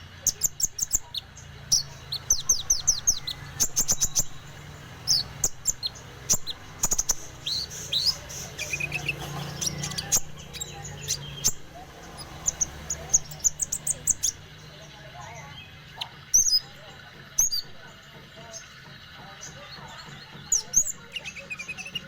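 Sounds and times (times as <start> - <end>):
bird chirping: 0.0 - 22.0.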